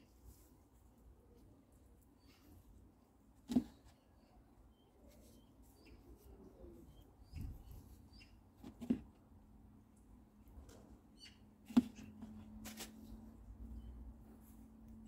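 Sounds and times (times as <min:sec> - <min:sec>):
faint bird chirps: 0:03.7 - 0:08.4, 0:11.1 - 0:11.4.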